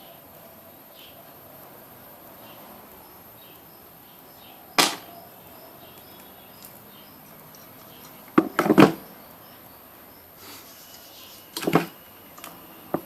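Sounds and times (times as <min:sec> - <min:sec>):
sharp knocks: 0:04.8 - 0:05.1, 0:08.4 - 0:09.0, 0:11.6 - 0:12.0.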